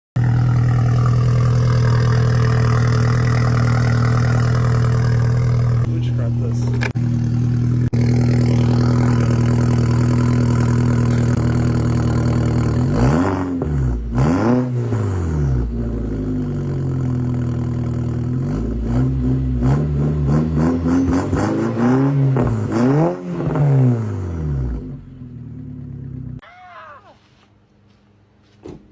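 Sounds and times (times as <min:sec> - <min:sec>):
car engine revving: 0:00.2 - 0:26.4.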